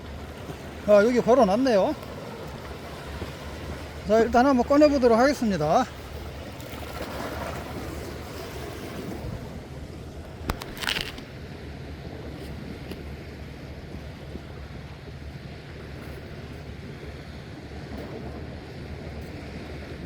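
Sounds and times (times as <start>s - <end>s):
sea waves: 0.0s - 20.0s
wind: 0.0s - 20.0s
brief rustle: 10.5s - 11.3s.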